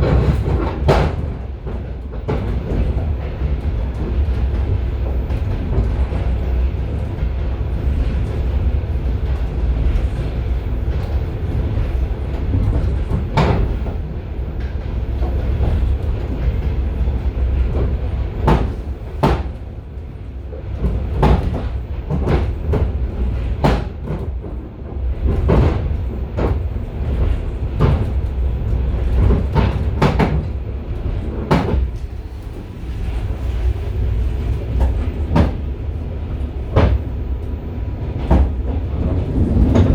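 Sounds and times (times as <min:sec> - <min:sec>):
wheels knocking on track: 0:00.0 - 0:06.6, 0:17.8 - 0:19.7, 0:20.8 - 0:30.7, 0:34.1 - 0:35.9
railway carriage low rumble: 0:00.0 - 0:39.9.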